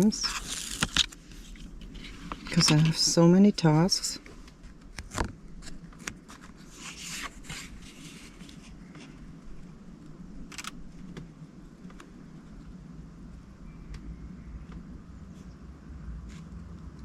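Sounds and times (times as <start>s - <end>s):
low steady hum: 0.0s - 17.0s
small clicks: 10.5s - 11.2s.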